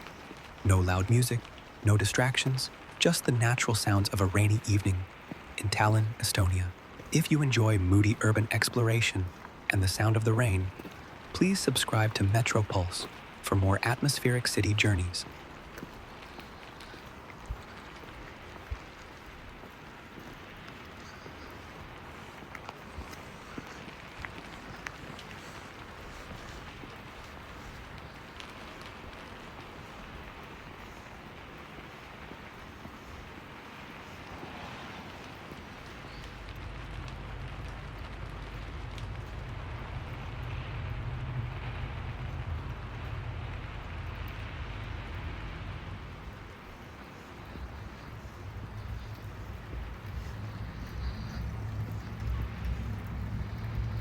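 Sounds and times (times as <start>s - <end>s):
rain hiss: 0.0s - 54.0s
faint ticks: 15.2s - 40.6s, 41.3s - 54.0s
low rumble: 36.2s - 54.0s.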